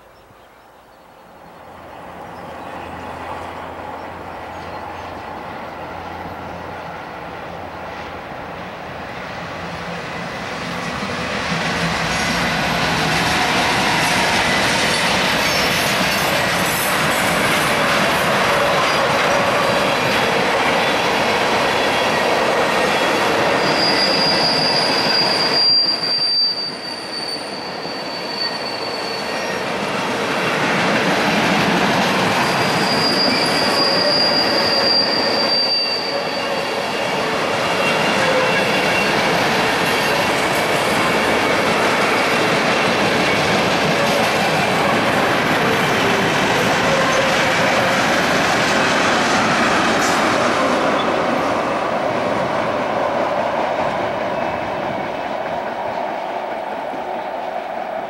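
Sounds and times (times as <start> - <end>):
train wheels rumbling and clacking: 2.0 - 58.0
high wheel squeal: 13.1 - 29.8, 32.2 - 48.3.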